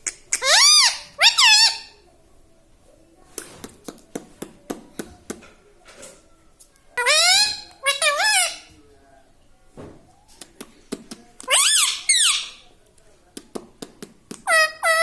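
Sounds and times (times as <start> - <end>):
parrot squeaky calls: 0.0 - 2.0, 7.0 - 8.7, 11.5 - 12.6, 14.5 - 15.0.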